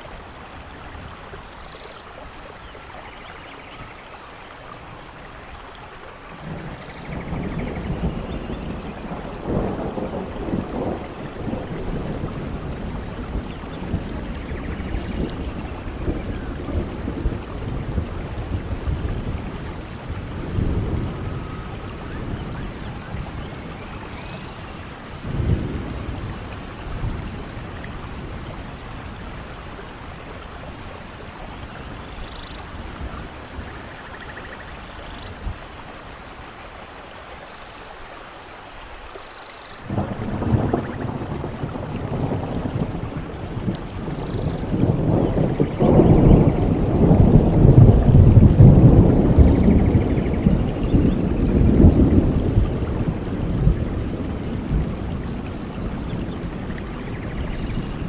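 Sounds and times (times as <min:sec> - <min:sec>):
steady rain: 0:00.0 - 0:58.0
rolling thunder: 0:06.3 - 0:35.6, 0:39.8 - 0:58.0
sharp thunderclap: 0:06.4 - 0:24.0, 0:39.9 - 0:58.0.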